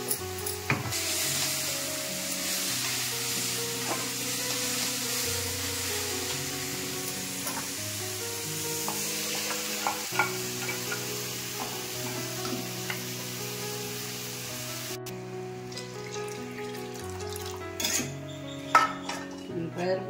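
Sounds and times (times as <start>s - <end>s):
vegetables sizzling in hot oil: 0.0s - 15.0s
soft background music: 0.0s - 20.0s
dal being poured: 15.6s - 17.6s
ladle scraping and clinking on pan: 17.8s - 18.1s.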